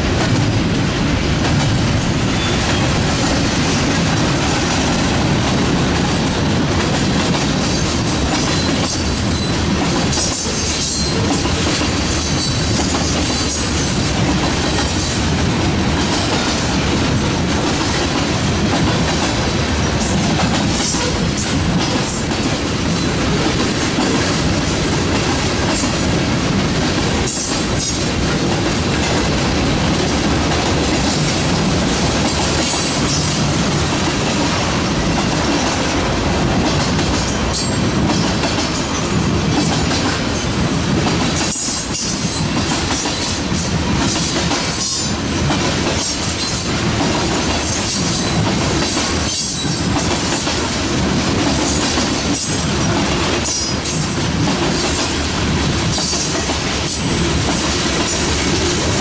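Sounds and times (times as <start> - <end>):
train wheels clattering over rail joints: 0.0 - 59.0.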